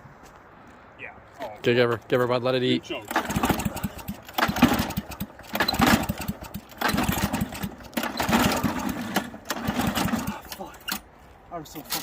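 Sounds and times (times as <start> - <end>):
lawn mower engine exhaust pops: 3.1 - 11.0.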